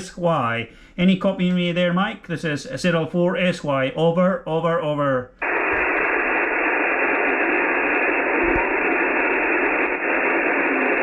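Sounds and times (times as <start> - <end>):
radio band noise hiss: 5.4 - 11.0.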